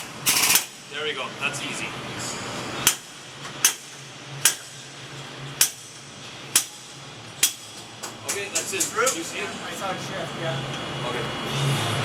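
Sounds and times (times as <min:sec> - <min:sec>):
sharp hammer strikes: 0:02.8 - 0:04.8, 0:05.6 - 0:08.4.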